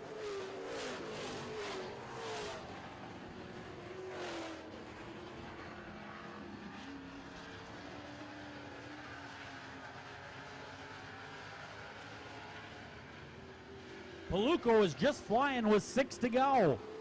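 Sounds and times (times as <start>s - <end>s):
racing truck engines: 0.0s - 17.0s
trucks passing close: 14.2s - 17.0s.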